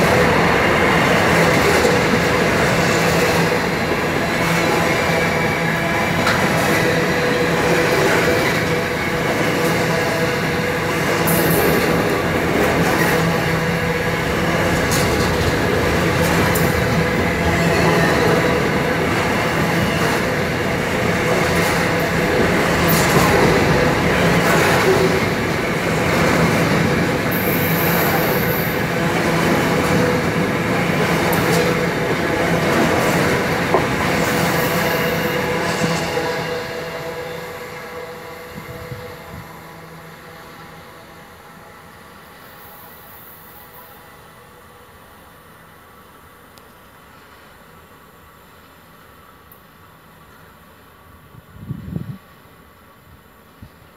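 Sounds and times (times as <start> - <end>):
steel wheels rolling on rails: 0.0 - 37.8.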